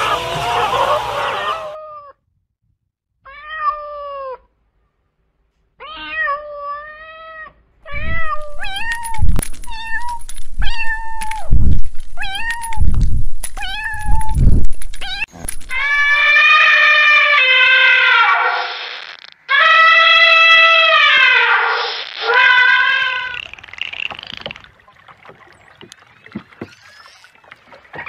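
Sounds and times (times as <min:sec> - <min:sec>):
cat meowing: 0:15.0 - 0:23.5.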